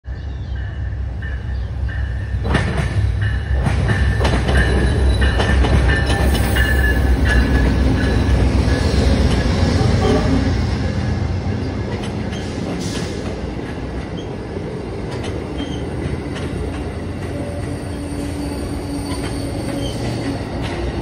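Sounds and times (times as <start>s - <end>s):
diesel locomotive rumble: 0.1s - 21.0s
high-pitched wheel squeal: 17.3s - 20.2s.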